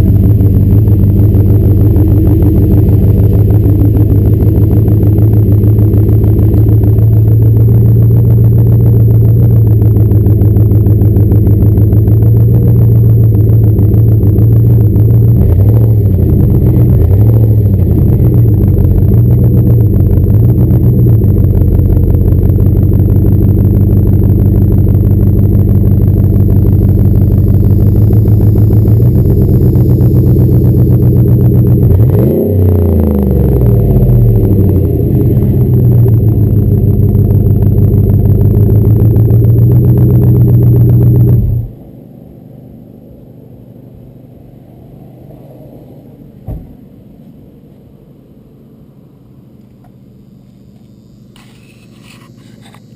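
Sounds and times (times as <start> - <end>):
truck engine idling: 0.0 - 41.9
engine throttle blips and revs: 0.0 - 52.9.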